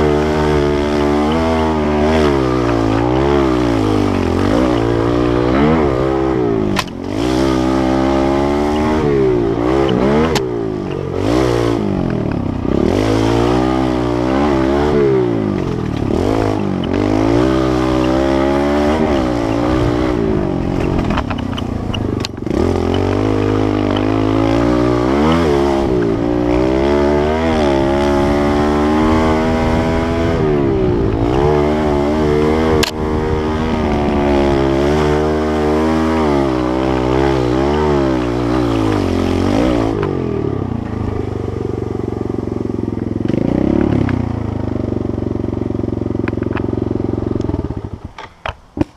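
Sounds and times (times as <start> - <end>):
small motorbike engine revving: 0.0 - 48.9
sharp clicks or knocks: 6.7 - 7.2, 19.1 - 23.3.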